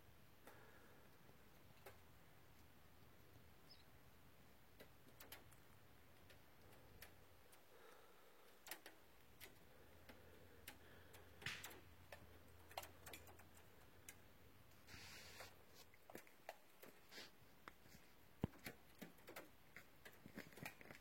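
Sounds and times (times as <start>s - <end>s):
faint clicks and ticks: 0.3s - 3.8s, 4.4s - 21.0s
soft rustles: 12.0s - 21.0s.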